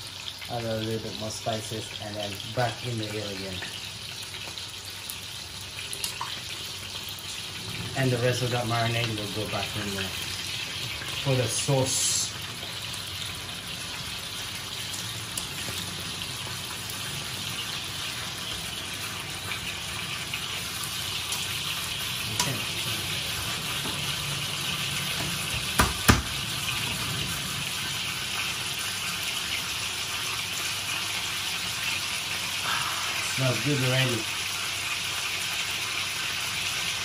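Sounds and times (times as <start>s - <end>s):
fish sizzling in frying pan: 0.0s - 37.0s
sharp knocks: 25.8s - 26.3s.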